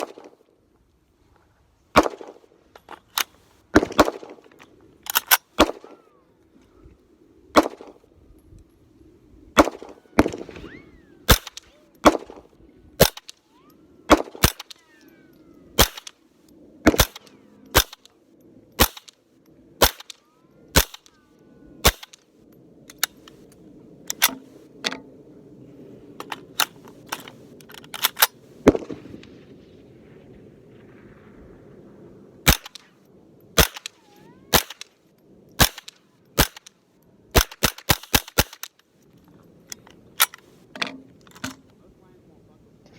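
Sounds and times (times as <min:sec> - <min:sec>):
rifle gunshots: 0:02.0 - 0:02.4, 0:03.7 - 0:04.5, 0:05.2 - 0:06.0, 0:07.5 - 0:08.0, 0:09.6 - 0:10.7, 0:11.3 - 0:13.3, 0:14.1 - 0:14.8, 0:15.8 - 0:16.1, 0:16.8 - 0:18.1, 0:18.8 - 0:19.1, 0:19.8 - 0:20.2, 0:28.6 - 0:29.4, 0:32.4 - 0:32.9, 0:33.6 - 0:34.9, 0:35.6 - 0:36.7, 0:37.3 - 0:38.7.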